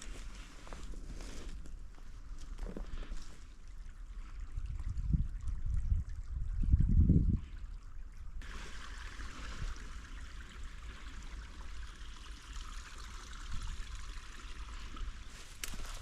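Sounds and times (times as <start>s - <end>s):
stream water trickling: 0.0s - 16.0s.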